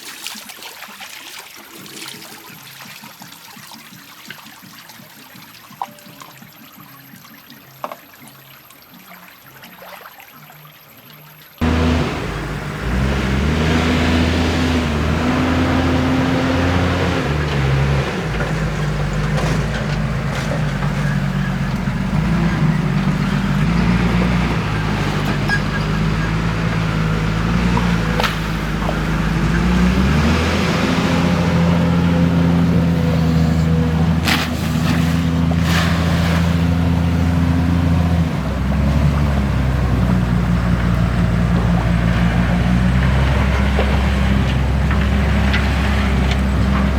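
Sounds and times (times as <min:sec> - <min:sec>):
diesel engine running hard: 0:11.6 - 0:46.9.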